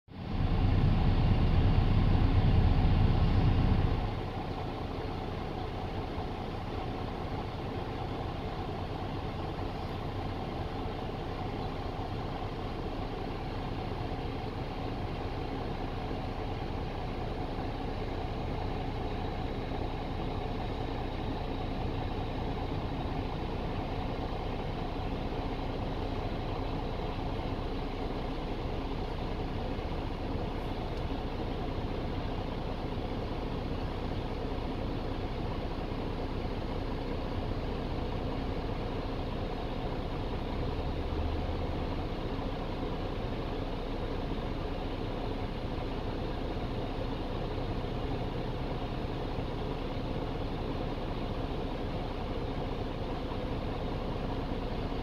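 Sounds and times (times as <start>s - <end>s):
car engine idling: 0.1s - 55.0s
low rumble: 0.3s - 4.5s.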